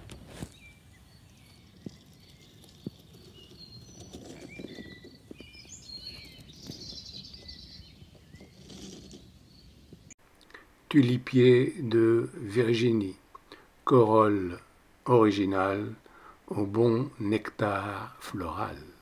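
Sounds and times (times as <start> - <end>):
birds chirping: 0.0 - 19.0
low outdoor background noise: 0.0 - 19.0.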